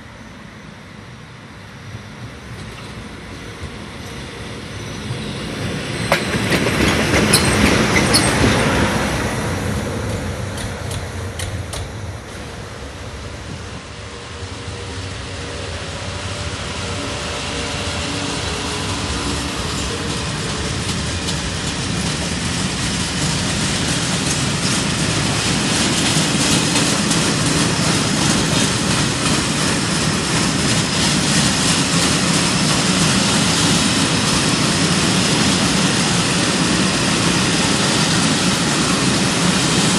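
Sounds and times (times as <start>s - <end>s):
train rumbling past: 0.0s - 39.9s
wheels clattering over rail joints: 6.0s - 9.0s.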